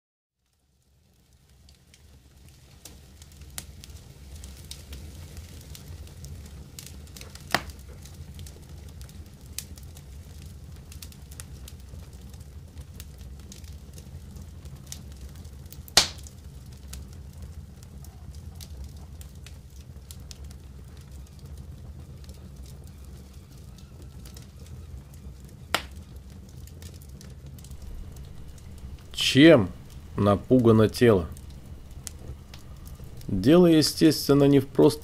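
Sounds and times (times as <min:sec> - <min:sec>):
wood fire crackling: 0:00.4 - 0:35.0
loud fire pops: 0:00.5 - 0:35.0.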